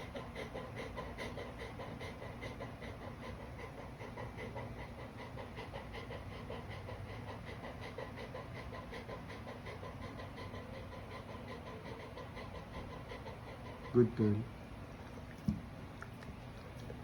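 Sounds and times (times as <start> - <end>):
dog chewing with wet smacks: 12.3 - 17.0.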